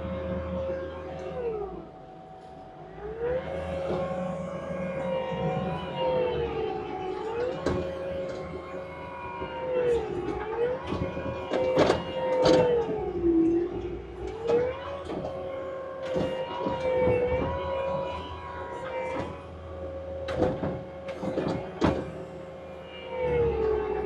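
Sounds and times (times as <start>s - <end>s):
machine engine and hydraulics whining: 0.0s - 24.0s
metallic clanks and knocks: 9.4s - 18.2s, 20.3s - 22.2s.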